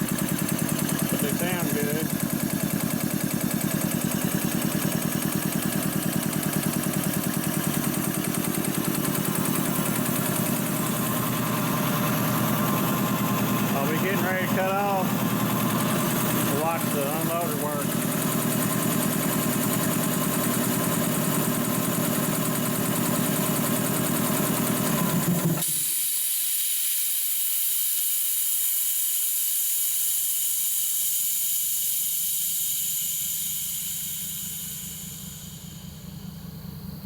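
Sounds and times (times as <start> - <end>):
air compressor pumping: 0.0 - 36.9
valve venting air hiss: 25.6 - 36.9.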